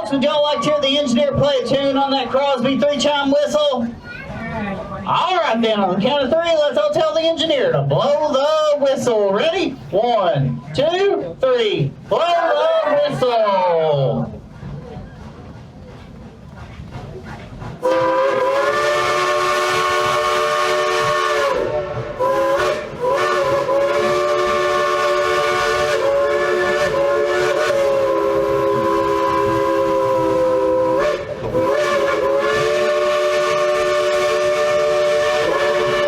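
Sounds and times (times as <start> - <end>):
steam whistle chord blasts: 17.8 - 36.0.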